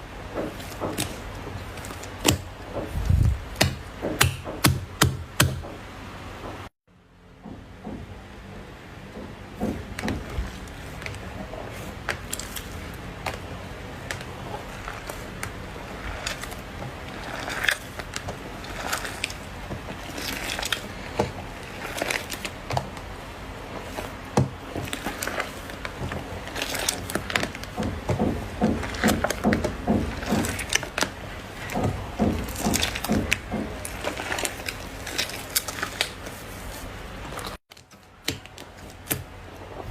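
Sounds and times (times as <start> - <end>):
slime squishing with sticky pops: 9.6 - 36.5.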